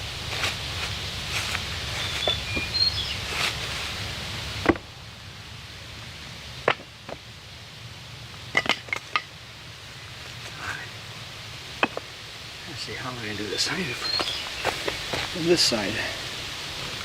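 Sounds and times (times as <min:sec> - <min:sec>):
steady rustling: 0:00.0 - 0:04.9.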